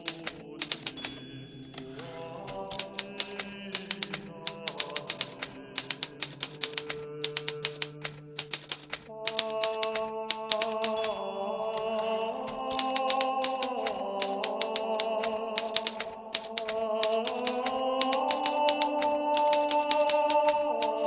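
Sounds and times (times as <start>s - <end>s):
typewriter keys striking: 0.0s - 21.0s.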